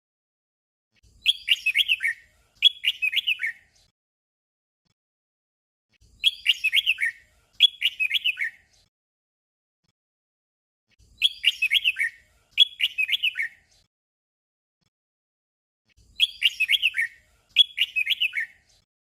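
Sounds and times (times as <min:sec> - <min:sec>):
bird singing warbled phrase: 0:01.0 - 0:03.8, 0:06.0 - 0:08.7, 0:11.0 - 0:13.7, 0:16.0 - 0:18.7.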